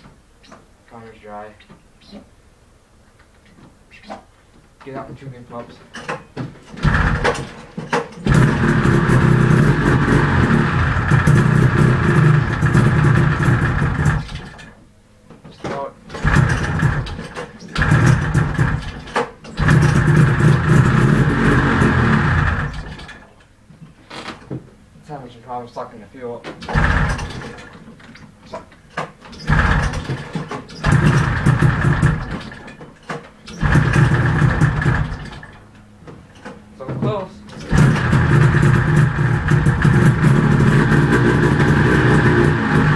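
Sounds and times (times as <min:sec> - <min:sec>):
starter cord pull: 0:05.9 - 0:14.8, 0:15.6 - 0:23.4, 0:26.5 - 0:42.9
snowmobile engine running: 0:06.8 - 0:14.7, 0:16.2 - 0:23.1, 0:26.7 - 0:27.7, 0:29.4 - 0:32.6, 0:33.5 - 0:35.6, 0:37.5 - 0:42.9.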